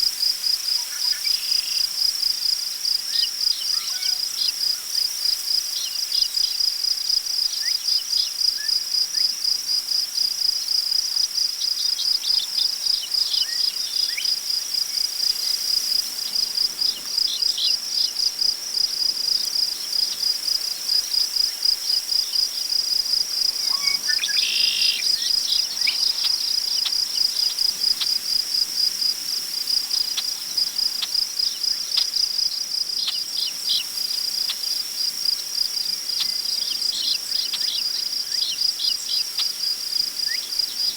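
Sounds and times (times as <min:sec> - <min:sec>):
crickets trilling: 0:00.0 - 0:40.9
bird chirps: 0:23.7 - 0:26.0.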